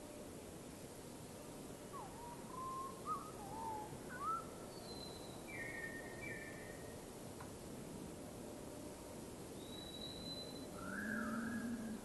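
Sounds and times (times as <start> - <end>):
steady background hiss: 0.0 - 12.0
wild birds calling: 10.8 - 12.0.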